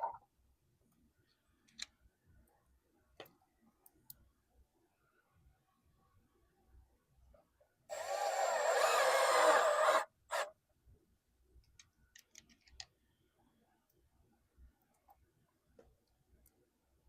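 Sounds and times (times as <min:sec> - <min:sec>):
power drill driving a screw: 0:07.9 - 0:10.5.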